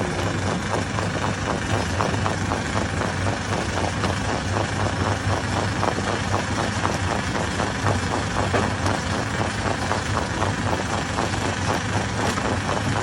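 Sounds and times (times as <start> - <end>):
rapid irregular knocking: 0.0 - 13.0
stone crusher running: 0.0 - 13.0.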